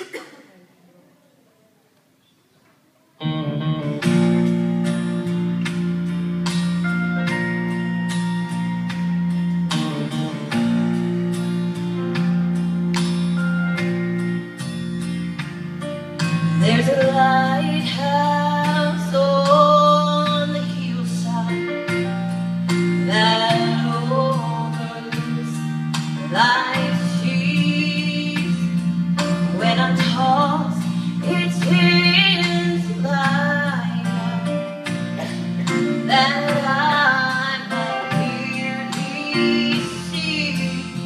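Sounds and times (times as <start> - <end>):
guitar chords: 3.2 - 41.0
woman singing: 16.6 - 22.1, 23.0 - 34.8, 35.6 - 41.0.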